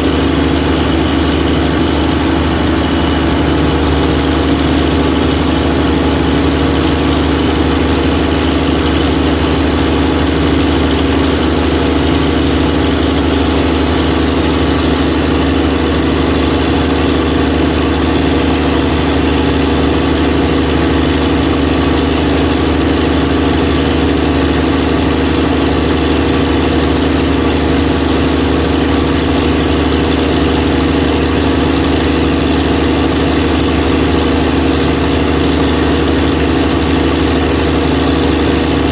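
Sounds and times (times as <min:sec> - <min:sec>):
diesel generator running: 0:00.0 - 0:38.9
thin high whine: 0:00.1 - 0:09.4.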